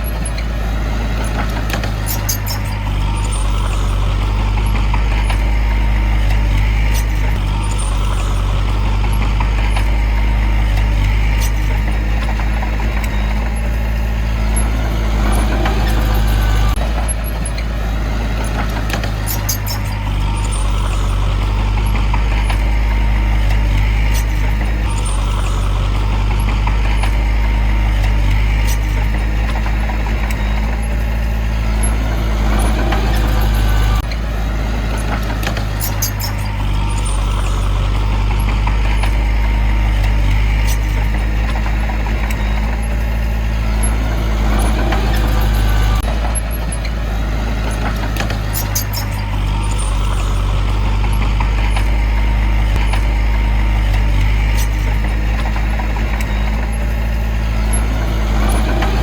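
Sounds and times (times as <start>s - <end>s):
heavy diesel engine running: 0.0s - 59.0s
metallic clicking and rattling: 1.2s - 17.7s, 18.4s - 34.3s, 34.9s - 47.0s.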